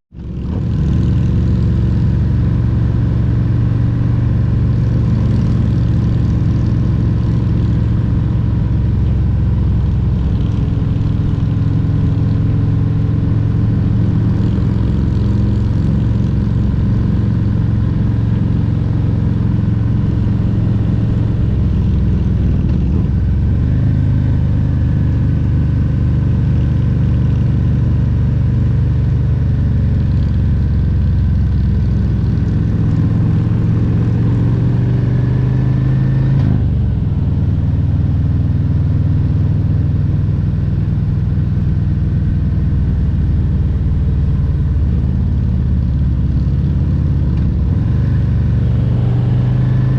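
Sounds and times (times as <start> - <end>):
motorcycle engine running: 0.1 - 49.9.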